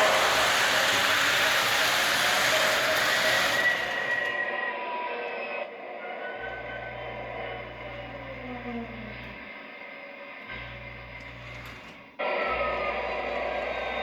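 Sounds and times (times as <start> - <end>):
wheels rushing on track: 0.0 - 4.8
model diesel locomotive sounds: 0.0 - 14.0.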